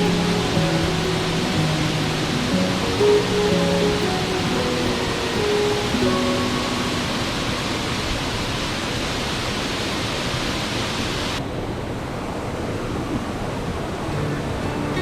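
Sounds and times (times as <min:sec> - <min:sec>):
rain falling: 0:00.0 - 0:11.4.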